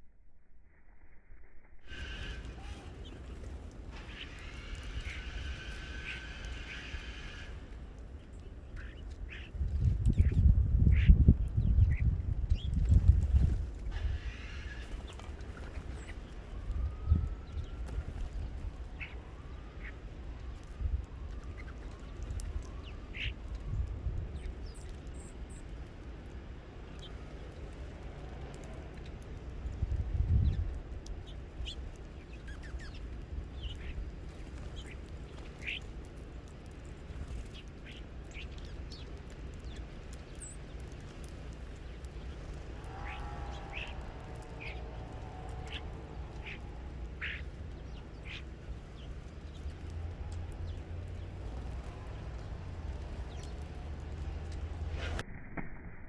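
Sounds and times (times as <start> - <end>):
birds chirping: 1.9 - 54.9
steady low rumble: 25.7 - 56.0.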